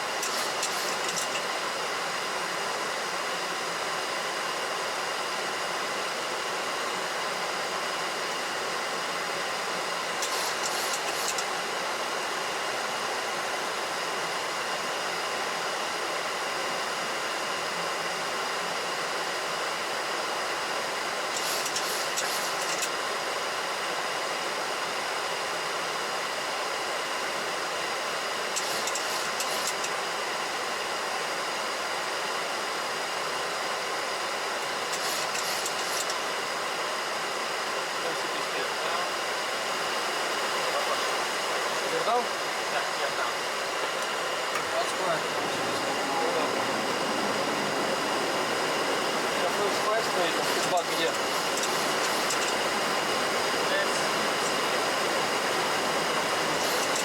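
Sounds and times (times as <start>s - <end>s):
airplane cockpit rushing noise: 0.1s - 1.5s, 8.2s - 11.7s, 28.5s - 30.0s, 40.6s - 57.0s.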